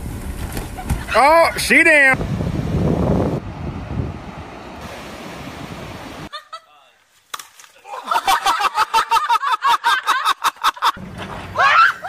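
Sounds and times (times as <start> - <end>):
wind on microphone: 2.1 - 6.3
rapid laughter: 7.9 - 11.0.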